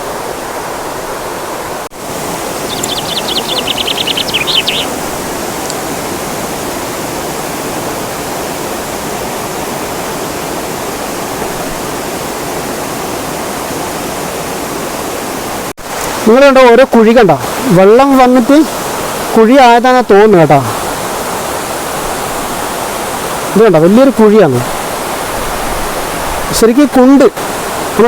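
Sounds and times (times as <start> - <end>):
waterfall cascading over rocks: 0.0 - 28.0
rapid high chirping trill: 2.7 - 5.0.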